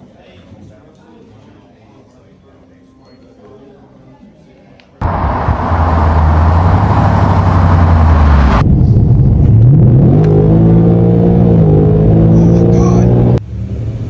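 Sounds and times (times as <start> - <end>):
car engine rumbling and revving: 5.0 - 14.0.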